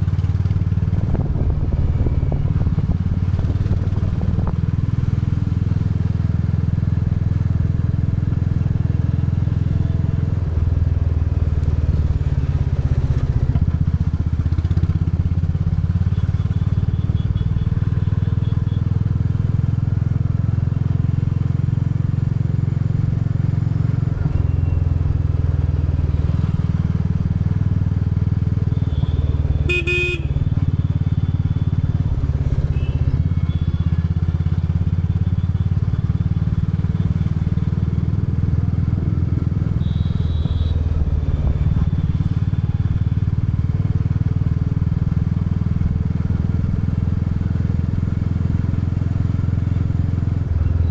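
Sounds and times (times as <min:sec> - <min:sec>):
motorcycle engine running: 0:00.0 - 0:50.9
motorcycle horn: 0:16.1 - 0:18.9, 0:28.7 - 0:31.0, 0:32.6 - 0:33.9, 0:39.7 - 0:42.3.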